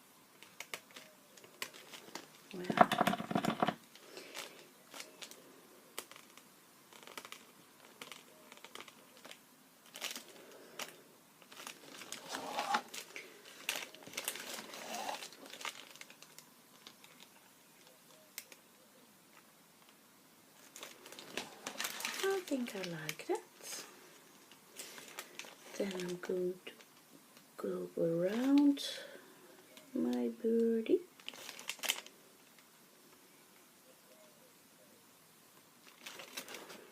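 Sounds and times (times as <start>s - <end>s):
paper crinkling: 0.4s - 18.7s, 20.6s - 27.0s, 31.1s - 32.6s, 35.8s - 36.9s.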